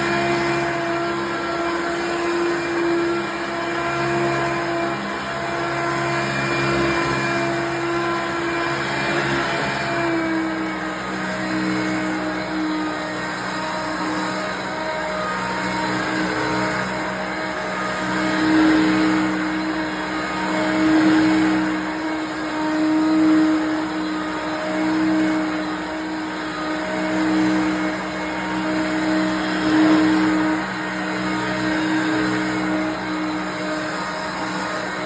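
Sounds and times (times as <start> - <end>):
vacuum cleaner motor hum: 0.0 - 35.0.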